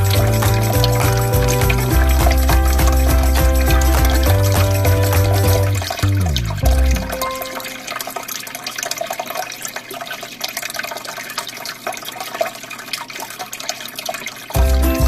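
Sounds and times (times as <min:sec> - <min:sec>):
background music: 0:00.0 - 0:08.0, 0:14.6 - 0:15.0
aquarium water flowing: 0:00.0 - 0:15.0.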